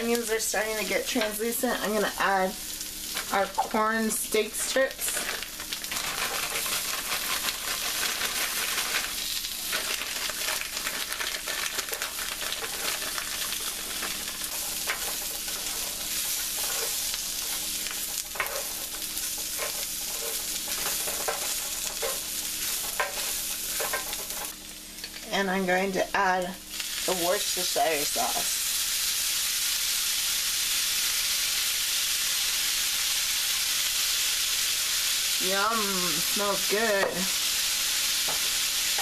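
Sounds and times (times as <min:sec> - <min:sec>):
food sizzling in a skillet: 0:00.0 - 0:39.0
stirring scrapes and clicks: 0:05.0 - 0:24.5.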